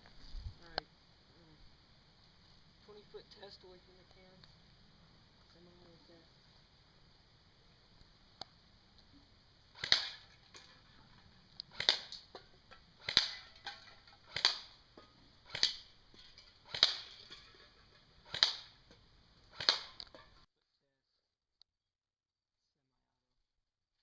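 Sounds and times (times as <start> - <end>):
airsoft rifle single shots: 9.7 - 10.2, 11.7 - 12.3, 13.0 - 13.5, 14.3 - 14.8, 15.4 - 15.9, 16.6 - 17.2, 18.2 - 18.8, 19.5 - 20.2.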